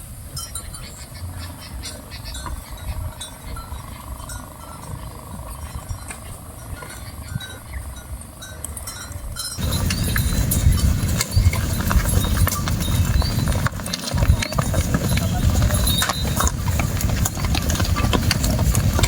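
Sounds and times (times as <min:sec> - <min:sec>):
cattle hooves clopping: 0:00.3 - 0:19.0.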